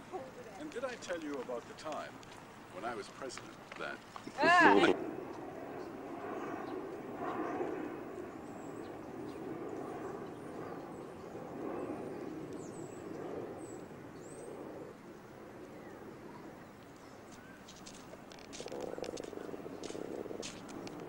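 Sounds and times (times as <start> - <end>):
low background noise: 0.0 - 6.9
sharp clicks: 18.3 - 21.0.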